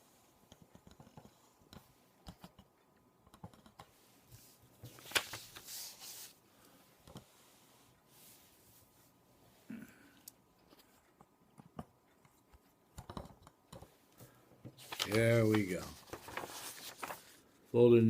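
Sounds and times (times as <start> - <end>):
small clicks and taps: 0.4 - 4.0, 10.2 - 14.8
paper rustling: 4.3 - 6.4, 14.2 - 17.6.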